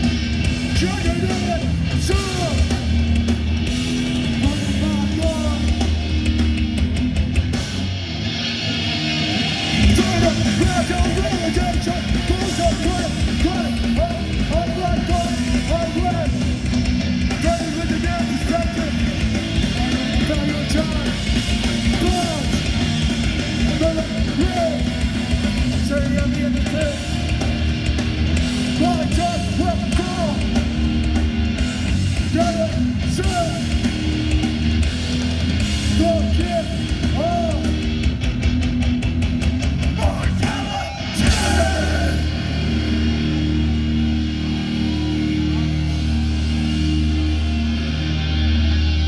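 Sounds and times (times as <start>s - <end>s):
bass: 0.0s - 49.0s
distorted electric guitars: 0.0s - 49.0s
drums: 0.0s - 49.0s
shouted vocals: 39.9s - 47.0s.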